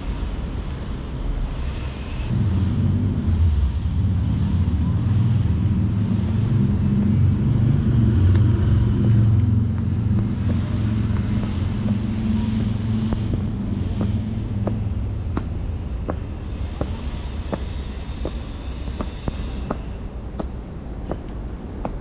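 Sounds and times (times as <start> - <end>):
motorcycle engine running: 6.2 - 22.0.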